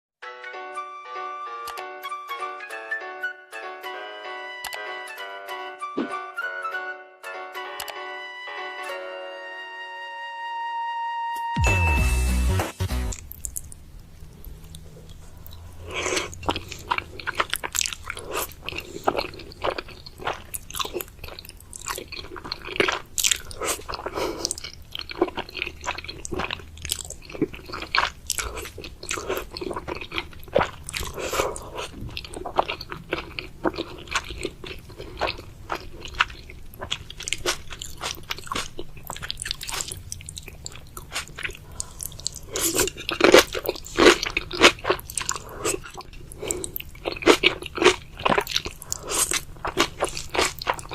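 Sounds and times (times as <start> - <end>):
person chewing noodles: 13.0 - 50.9.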